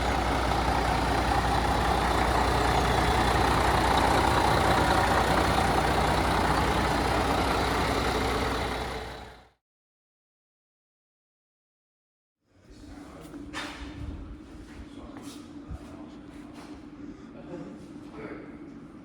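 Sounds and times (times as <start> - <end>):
heavy truck engine rumbling: 0.0 - 9.5.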